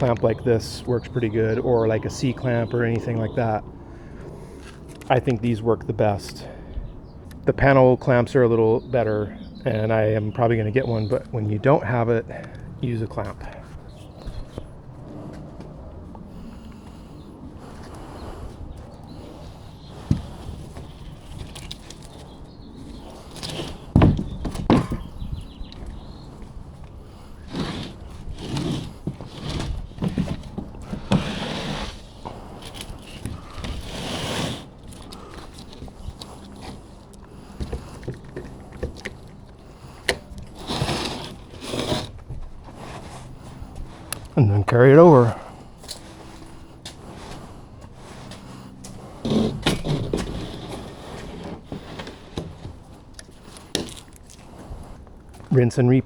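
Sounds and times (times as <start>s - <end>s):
wooden sheets scraping and bumping: 19.1s - 44.3s, 45.0s - 55.6s.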